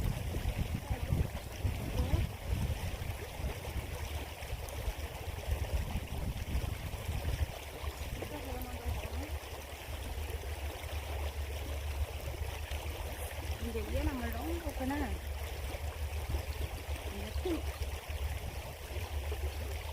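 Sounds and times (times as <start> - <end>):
creek water flowing: 0.0 - 19.9.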